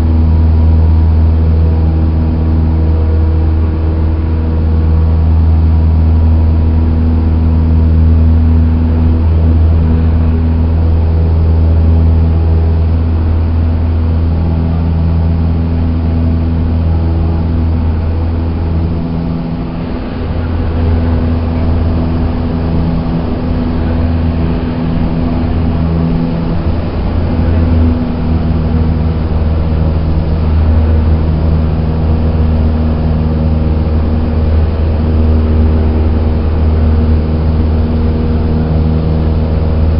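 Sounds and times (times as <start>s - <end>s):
airplane engine droning: 0.0s - 39.9s.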